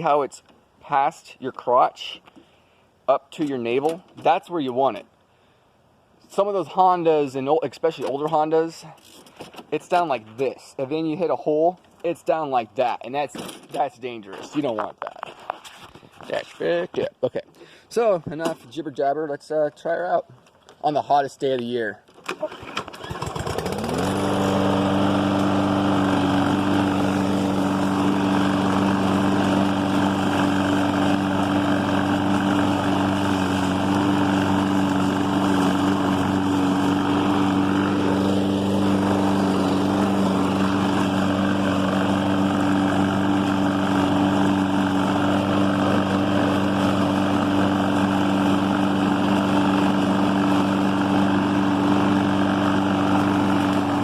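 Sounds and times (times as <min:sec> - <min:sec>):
lawn mower engine running: 0:22.3 - 0:54.0.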